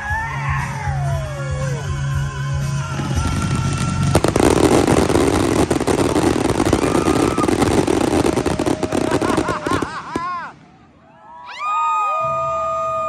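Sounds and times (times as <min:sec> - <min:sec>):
fireworks bangs and crackles: 0:02.6 - 0:11.0.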